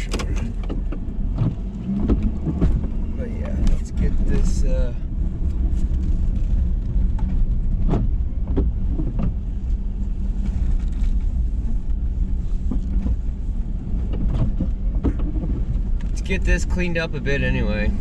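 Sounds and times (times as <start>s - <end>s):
truck engine low rumble: 0.0s - 18.0s.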